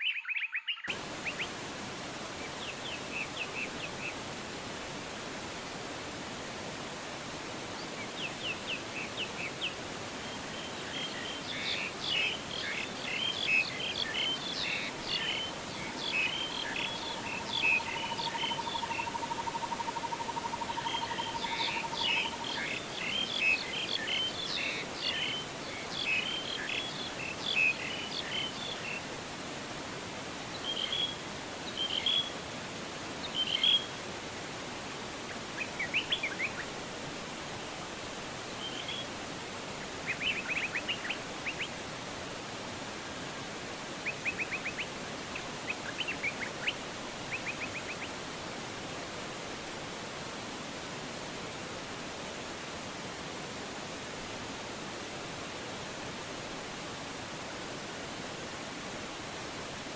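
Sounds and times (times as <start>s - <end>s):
falling water rushing: 0.9s - 59.9s
songbirds chirping and whistling: 10.3s - 25.4s.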